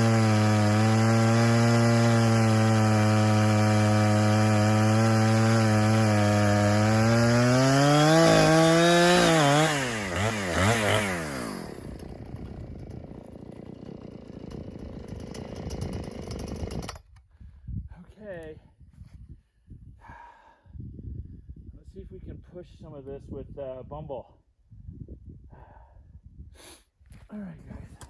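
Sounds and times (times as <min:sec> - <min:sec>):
chainsaw engine revving: 0:00.0 - 0:17.1.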